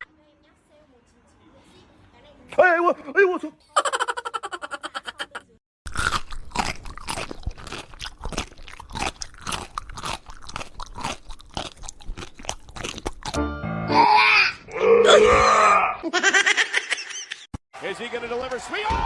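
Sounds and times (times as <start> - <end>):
chewing crunchy food: 5.9 - 13.4.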